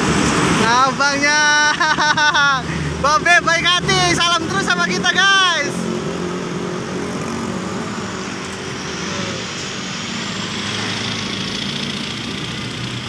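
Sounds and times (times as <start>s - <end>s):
road and traffic noise: 0.0s - 13.0s
motor vehicle engine running: 5.4s - 13.0s.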